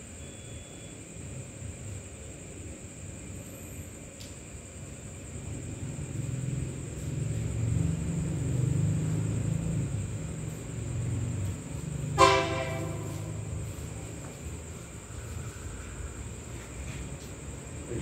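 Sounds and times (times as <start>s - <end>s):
cicada singing: 0.0s - 18.0s
diesel locomotive rumble: 5.1s - 18.0s
train horn blast: 12.1s - 13.7s.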